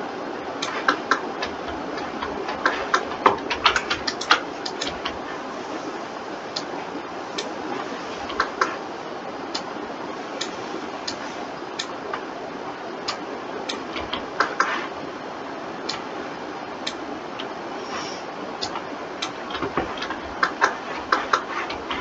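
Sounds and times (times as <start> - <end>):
steady background hiss: 0.0 - 22.0
mouse and keyboard clicks: 0.6 - 5.2, 8.2 - 8.8, 13.1 - 14.9, 18.6 - 22.0.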